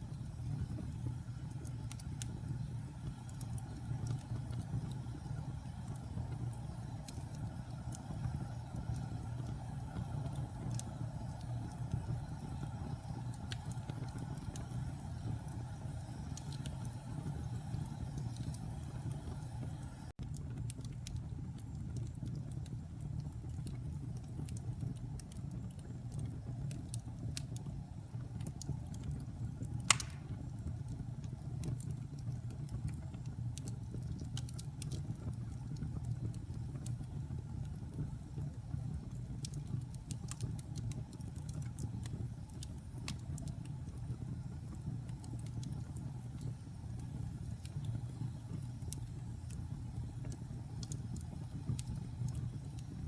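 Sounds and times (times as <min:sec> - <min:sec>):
fire burning with crackles: 0:00.0 - 0:53.0
loud fire pop: 0:29.9 - 0:30.4.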